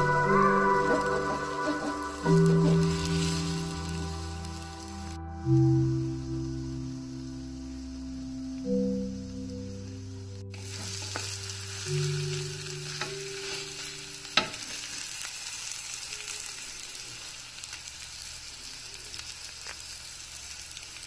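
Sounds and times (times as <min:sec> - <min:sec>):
omelette sizzling in oil: 0:00.0 - 0:21.0.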